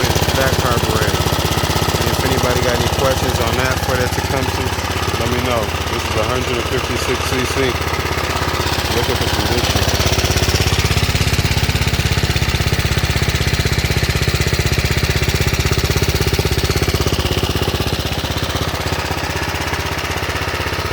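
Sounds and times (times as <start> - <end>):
small engine running steadily: 0.0 - 20.9.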